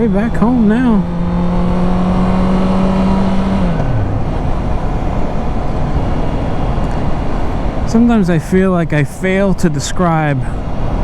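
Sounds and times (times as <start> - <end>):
motorcycle engine running: 0.0 - 8.6
wind rush: 0.0 - 11.0.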